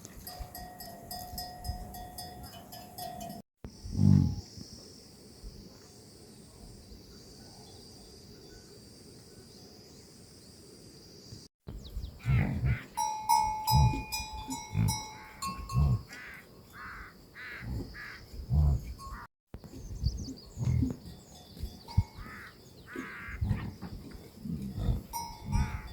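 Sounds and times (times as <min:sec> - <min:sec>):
livestock calling: 0:12.1 - 0:19.3, 0:21.6 - 0:25.9
ringing tone: 0:13.0 - 0:16.0, 0:24.8 - 0:25.9.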